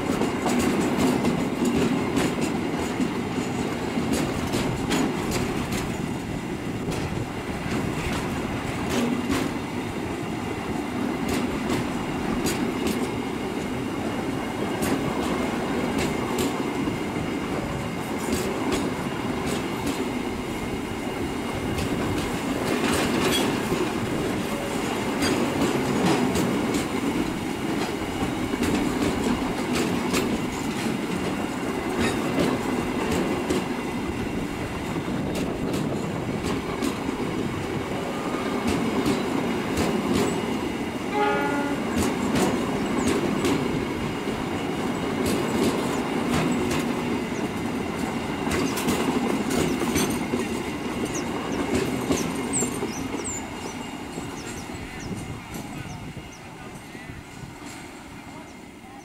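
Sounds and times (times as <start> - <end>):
wheels clicking over rail joints: 0.0 - 9.7, 21.6 - 34.4, 35.0 - 37.5, 41.5 - 55.9
train wheels rumbling: 0.0 - 59.0
short horn-like tone: 41.1 - 42.0.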